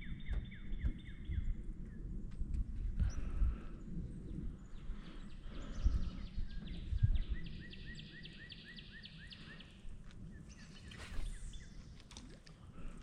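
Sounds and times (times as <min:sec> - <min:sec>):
bird chirping: 0:00.0 - 0:02.1, 0:04.1 - 0:12.3
low rumble: 0:00.0 - 0:08.4.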